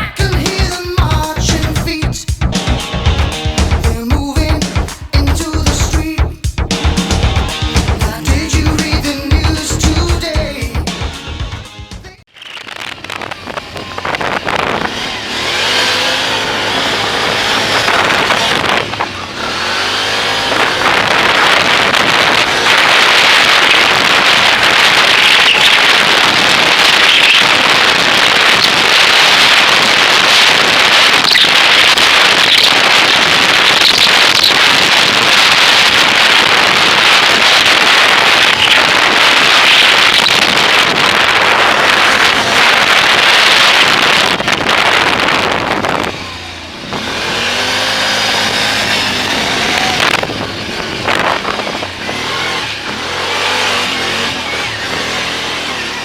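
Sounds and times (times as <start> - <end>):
engine accelerating: 0.0 - 12.1, 12.8 - 56.0
wind buffeting microphone: 13.0 - 56.0.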